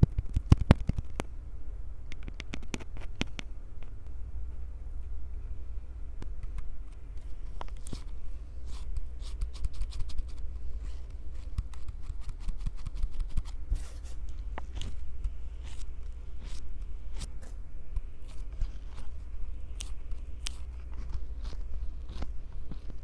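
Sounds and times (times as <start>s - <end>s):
fingers scratching microphones: 0.0s - 1.2s, 7.7s - 23.0s.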